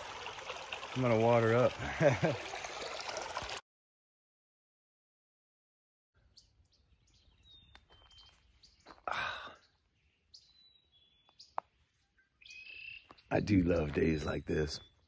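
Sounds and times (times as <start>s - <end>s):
songbirds chirping: 6.2s - 15.0s.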